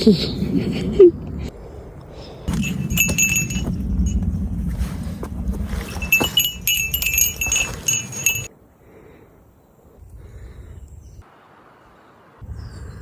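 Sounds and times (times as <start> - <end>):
low rumble: 2.5 - 8.4
small metal bell jingling: 2.5 - 8.5.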